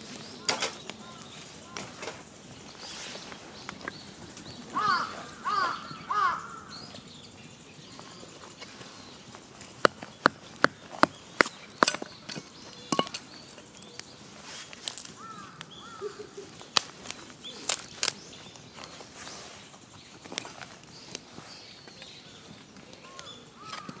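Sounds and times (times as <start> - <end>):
crow cawing: 4.7 - 6.7, 15.2 - 16.5.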